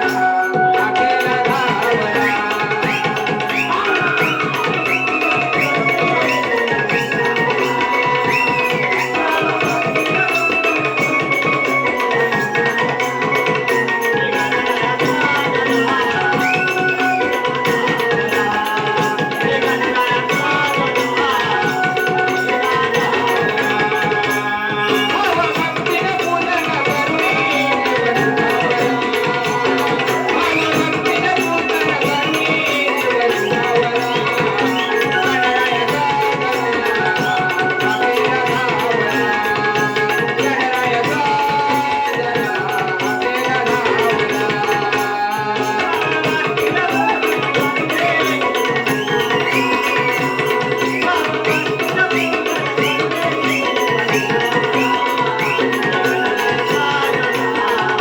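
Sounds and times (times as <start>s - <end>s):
folk music with drums: 0.0s - 58.0s
wavering melody: 0.0s - 58.0s.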